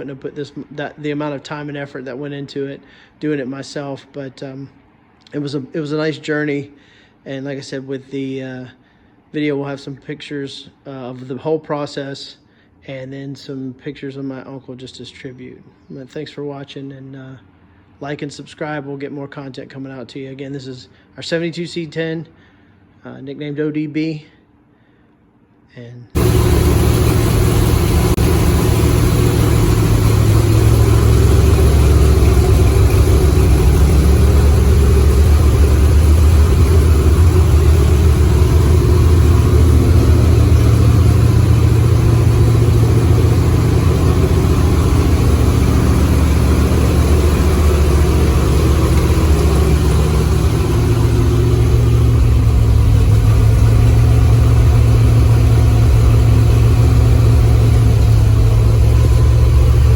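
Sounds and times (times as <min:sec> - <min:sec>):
vehicle engine idling: 0:26.2 - 0:59.9.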